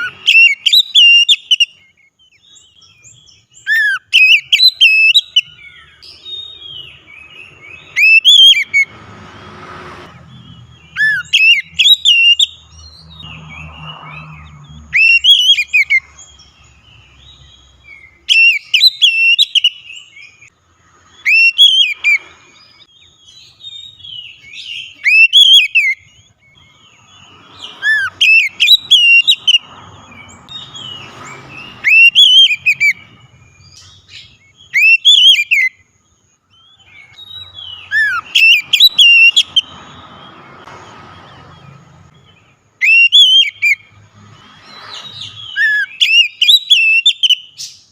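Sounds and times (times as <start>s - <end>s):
bird singing whistled phrases: 0.0s - 8.9s, 10.8s - 13.1s, 14.0s - 16.1s, 17.4s - 20.5s, 21.2s - 22.3s, 23.0s - 26.6s, 27.6s - 29.6s, 30.5s - 35.8s, 36.5s - 39.9s, 42.8s - 43.9s, 44.8s - 47.9s.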